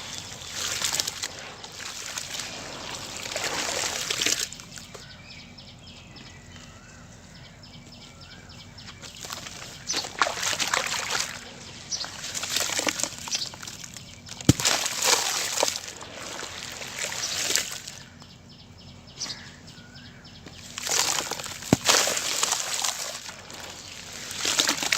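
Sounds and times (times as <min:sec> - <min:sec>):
cement crumbling gritty crackling: 0:00.0 - 0:05.0, 0:09.1 - 0:18.1, 0:20.6 - 0:24.9.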